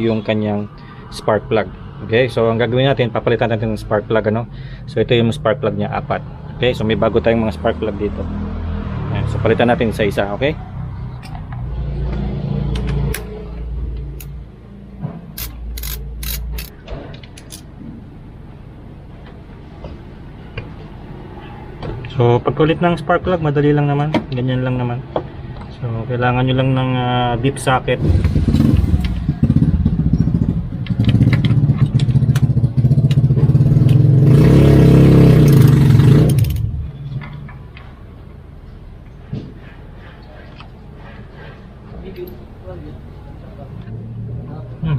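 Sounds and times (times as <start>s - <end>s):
vehicle engine passing by: 5.6s - 16.7s, 27.9s - 38.0s, 42.8s - 44.9s
socket ratchet clicking: 15.4s - 16.7s, 17.4s - 17.6s.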